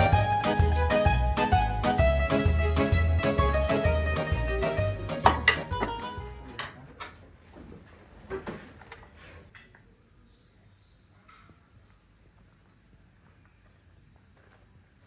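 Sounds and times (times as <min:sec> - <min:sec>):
background music: 0:00.0 - 0:06.6
faint birds chirping: 0:09.4 - 0:15.0.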